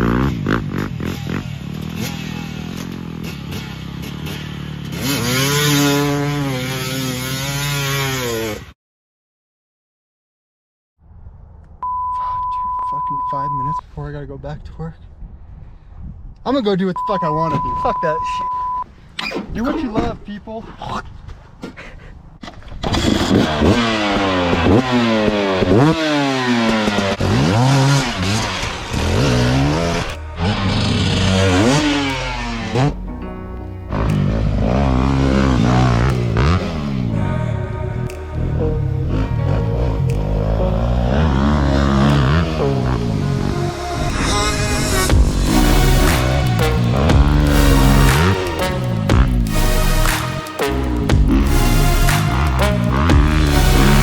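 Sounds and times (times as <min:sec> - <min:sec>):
dirt bike engine revving: 0:00.0 - 0:08.8, 0:23.0 - 0:33.1, 0:33.9 - 0:37.4, 0:39.0 - 0:54.0.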